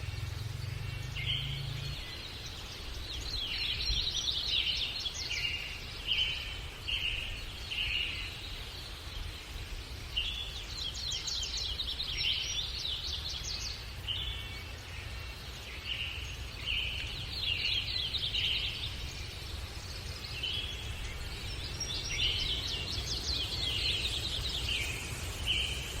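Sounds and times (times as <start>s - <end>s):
songbird chirps and trills: 0.0s - 26.0s.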